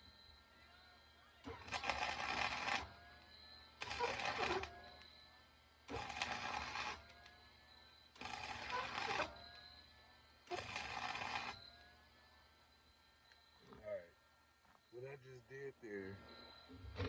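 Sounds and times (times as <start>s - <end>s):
welder arc crackling: 1.5s - 4.7s, 5.9s - 7.2s, 8.2s - 9.6s, 10.5s - 11.6s.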